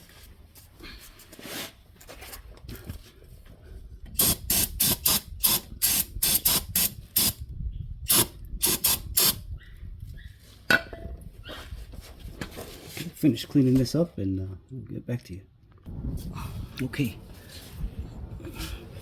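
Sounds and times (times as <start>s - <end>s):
aerosol can spraying in bursts: 4.2s - 7.4s, 8.1s - 9.4s.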